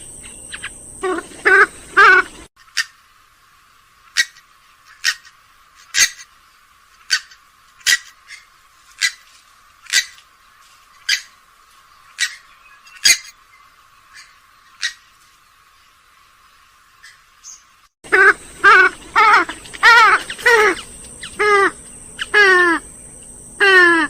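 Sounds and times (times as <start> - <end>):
bird short sharp calls: 17.0 - 22.9.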